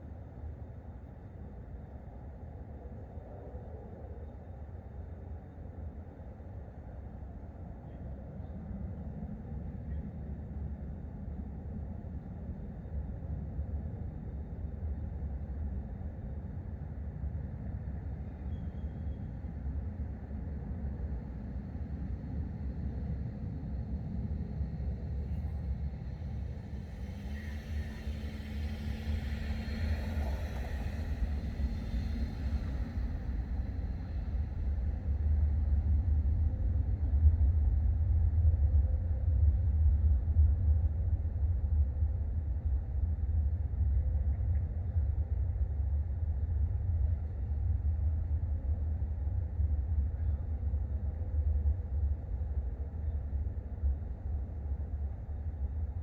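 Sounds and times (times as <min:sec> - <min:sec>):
vehicle passing with a hiss: 0:26.2 - 0:35.4.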